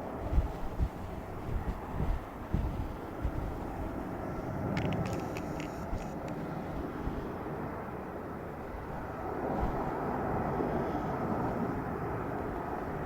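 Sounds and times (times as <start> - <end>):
jet engines rumbling: 0.0 - 13.0
short clicks: 4.7 - 6.4.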